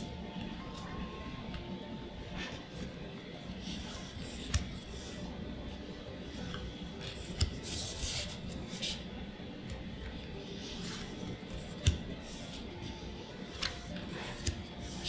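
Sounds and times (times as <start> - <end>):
cards sliding: 3.5 - 15.0.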